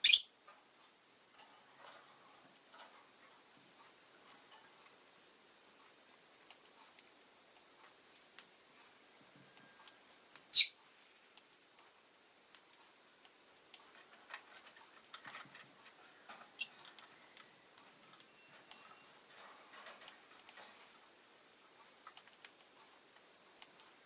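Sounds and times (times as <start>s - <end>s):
bird high chirp: 0.0s - 0.4s, 10.5s - 10.8s
small clicks and taps: 5.8s - 8.6s, 11.3s - 21.0s, 21.8s - 24.0s.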